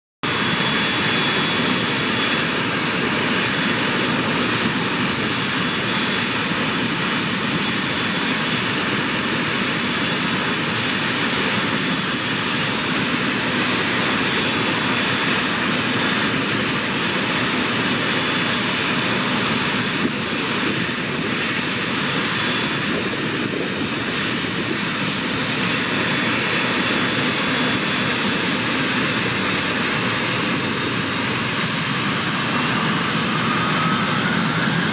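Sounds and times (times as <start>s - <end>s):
high-pitched turbine whine: 0.2s - 34.9s
jet engine running: 0.2s - 34.9s.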